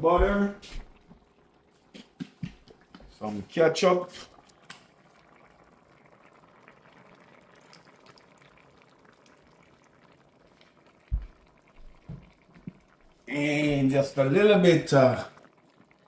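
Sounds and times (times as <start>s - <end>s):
pot simmering with faint bubbling: 0.0s - 16.0s.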